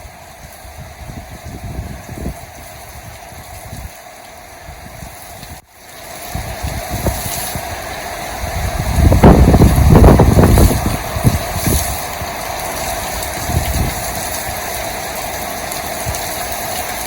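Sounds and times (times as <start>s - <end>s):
rain hiss: 0.0s - 17.0s
wind buffeting microphone: 0.0s - 17.0s.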